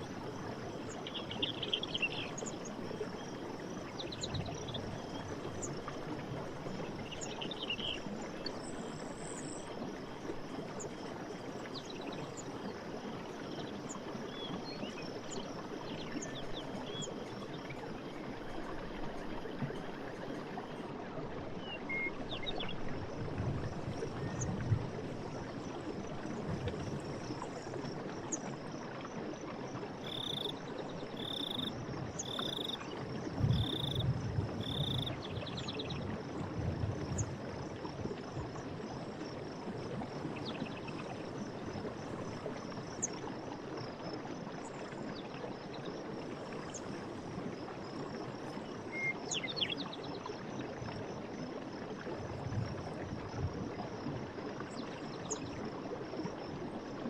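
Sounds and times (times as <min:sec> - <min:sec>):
frog calls: 0:30.0 - 0:32.8, 0:33.5 - 0:35.2
high insect hiss: 0:31.2 - 0:32.8, 0:33.5 - 0:35.2.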